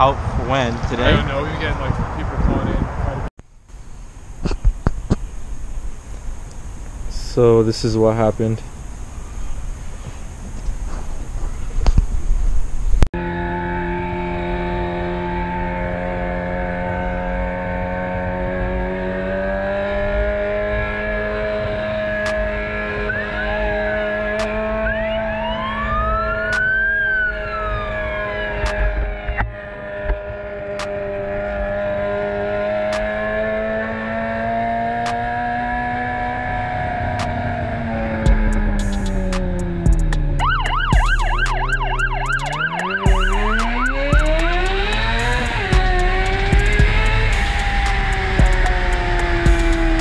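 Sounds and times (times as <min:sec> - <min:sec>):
siren wailing: 0:13.2 - 0:50.0
motorcycle engine running: 0:28.7 - 0:50.0.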